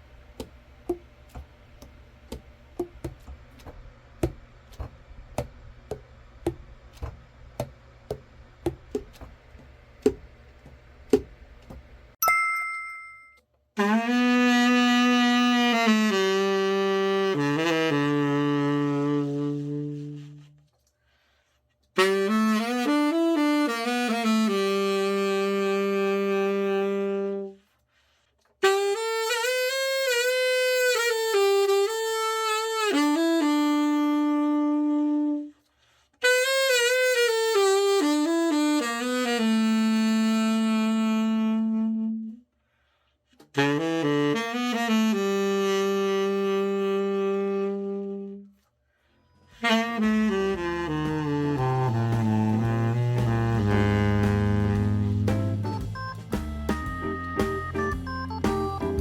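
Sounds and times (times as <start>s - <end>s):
tenor saxophone playing: 13.8s - 20.7s, 22.0s - 27.8s, 28.6s - 42.5s, 43.4s - 48.7s, 49.4s - 57.9s.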